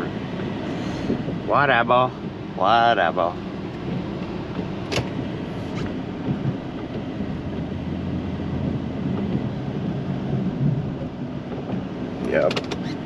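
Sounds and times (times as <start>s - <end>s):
plow truck engine droning: 0.0s - 13.0s.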